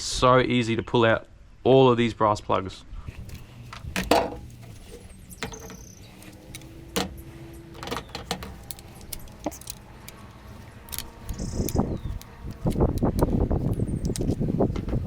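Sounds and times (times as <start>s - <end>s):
pliers clicking: 8.2s - 14.4s.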